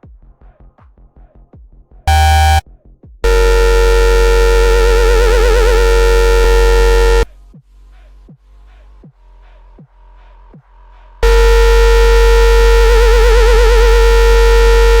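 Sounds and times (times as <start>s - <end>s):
synth lead with vibrato: 2.1s - 2.6s, 3.2s - 7.3s, 11.2s - 15.0s
quiet electronic beat: 3.2s - 7.3s, 11.2s - 15.0s.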